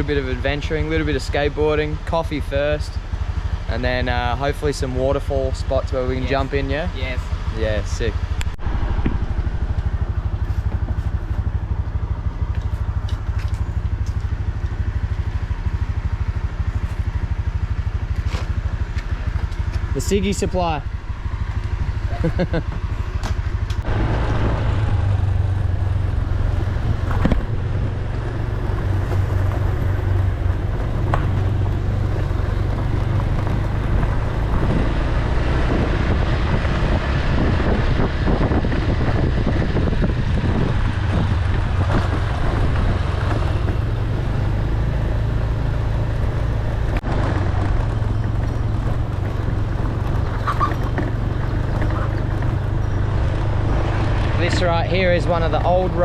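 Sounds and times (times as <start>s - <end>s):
road and wind noise: 0.0s - 56.0s
vehicle engine running: 0.0s - 56.0s.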